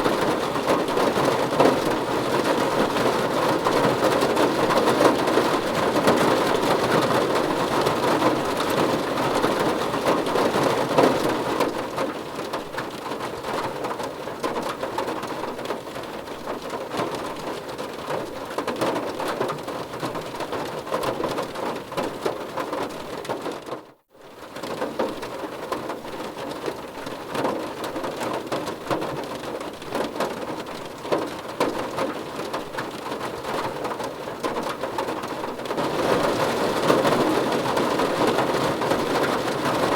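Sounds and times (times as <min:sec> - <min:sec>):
rain on a car roof: 0:00.0 - 0:39.9.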